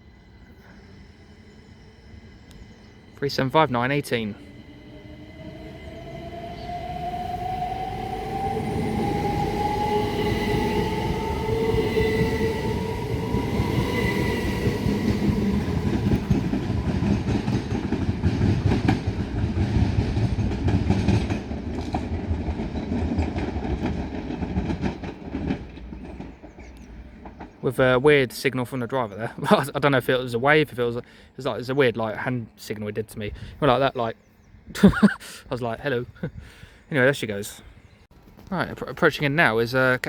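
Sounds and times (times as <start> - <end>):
electric train motors whining: 0.0 - 19.8
wheels clattering over rail joints: 14.5 - 28.0.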